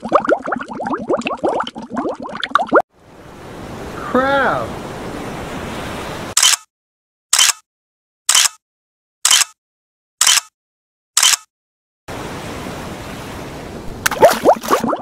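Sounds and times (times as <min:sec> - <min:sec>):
rising bubbly blips: 0:00.0 - 0:02.8, 0:14.0 - 0:15.0
ocean surf rushing: 0:03.0 - 0:06.4, 0:12.1 - 0:14.8.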